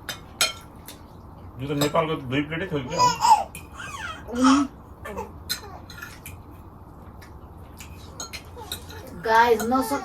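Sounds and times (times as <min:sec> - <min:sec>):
cutlery clicking on plates: 0:07.8 - 0:09.0.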